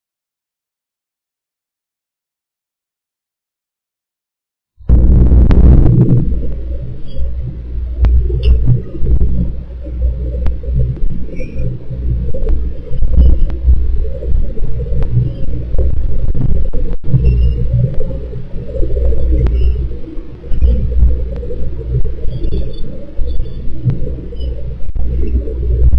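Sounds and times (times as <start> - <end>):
wind buffeting microphone: 4.9 - 25.9
faint clicks: 6.1 - 25.9.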